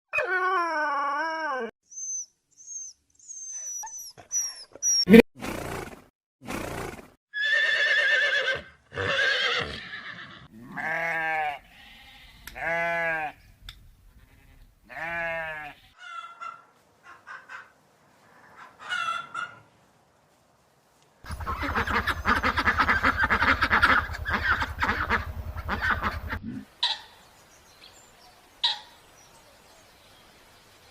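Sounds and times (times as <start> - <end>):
wavering bleats: 9.0 - 13.4, 14.2 - 16.0.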